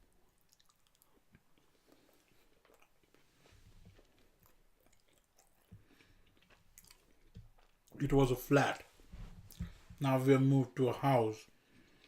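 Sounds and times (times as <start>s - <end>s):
faint chewing: 0.0s - 8.0s.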